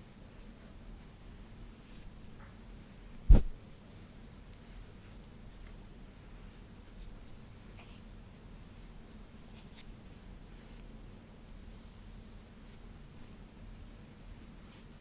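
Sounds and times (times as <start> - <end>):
brush strokes through hair: 3.3 - 3.6.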